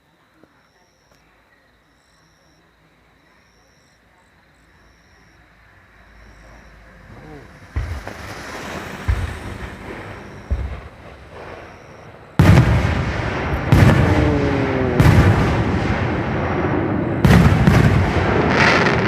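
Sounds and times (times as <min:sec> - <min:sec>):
fireworks booming: 0:06.3 - 0:19.0
fireworks crackling: 0:06.6 - 0:19.0
light fireworks thumps: 0:07.6 - 0:14.2.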